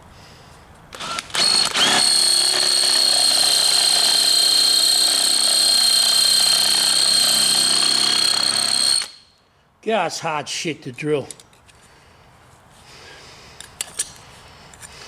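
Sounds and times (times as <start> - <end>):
electric drill whining into metal: 0.9 - 9.3.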